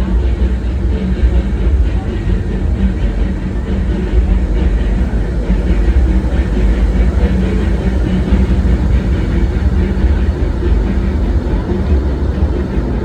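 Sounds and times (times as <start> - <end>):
steam train rolling on track: 0.0 - 13.0.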